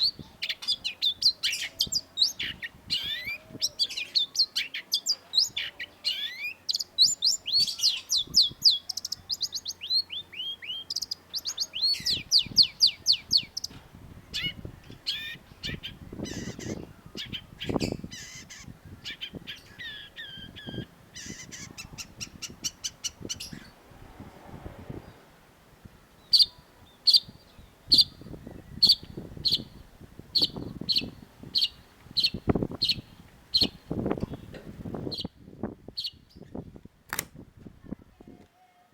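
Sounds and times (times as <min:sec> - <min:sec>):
shrike singing: 0:00.0 - 0:23.8.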